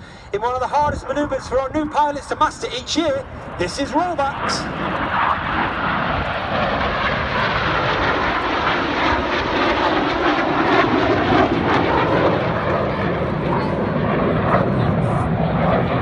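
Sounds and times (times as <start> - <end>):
jet noise: 0.0 - 16.0.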